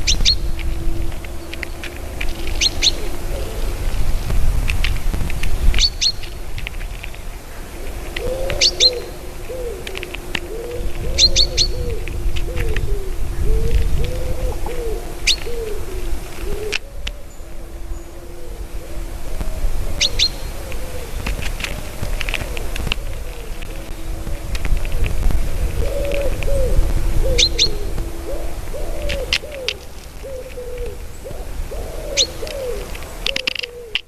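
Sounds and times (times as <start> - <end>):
birds chirping: 0.0 - 34.0
low cooing notes: 0.0 - 34.0
low wind rumble: 0.0 - 34.0.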